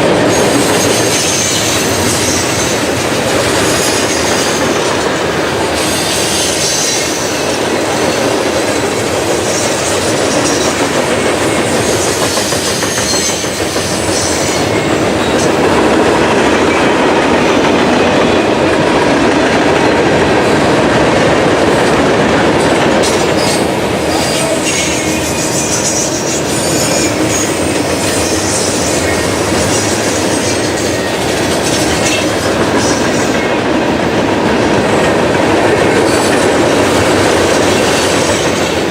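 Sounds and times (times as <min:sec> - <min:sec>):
freight train rumbling past: 0:00.0 - 0:38.9
high wheel squeal: 0:11.7 - 0:15.6, 0:23.4 - 0:33.2.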